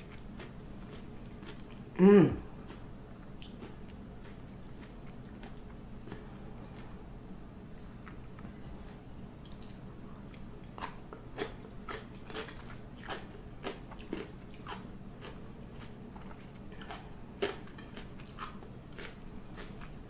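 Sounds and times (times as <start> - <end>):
chewing crunchy pickled vegetables: 0.0 - 7.3, 7.9 - 20.0.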